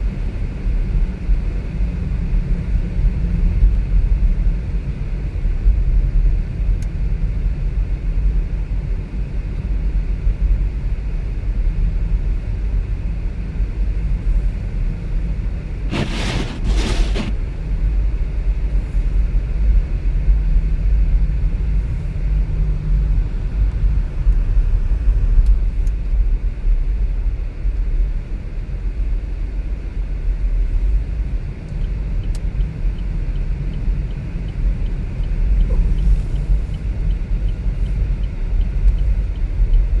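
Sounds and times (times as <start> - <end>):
car driving on road: 0.0 - 40.0
burst of hiss: 15.9 - 17.4.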